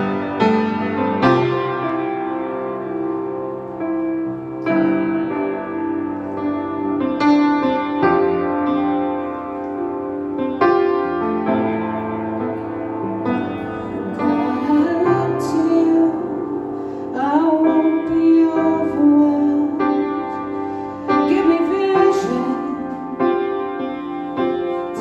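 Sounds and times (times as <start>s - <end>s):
piano chords: 0.0s - 25.0s
woman singing: 13.6s - 20.4s, 21.1s - 23.2s.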